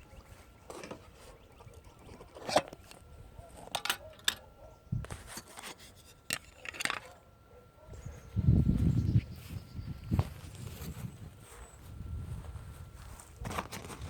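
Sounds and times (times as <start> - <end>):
footsteps scuffing: 8.8 - 14.0.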